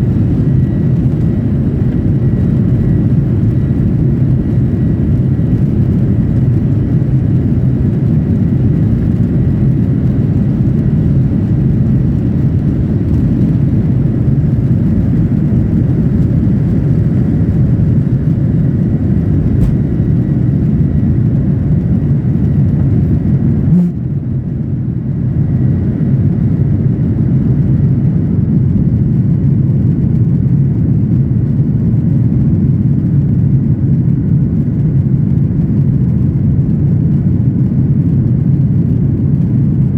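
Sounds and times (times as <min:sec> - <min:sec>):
faint thin whine: 0:00.0 - 0:27.5
jet engine and airflow noise: 0:00.0 - 0:39.9.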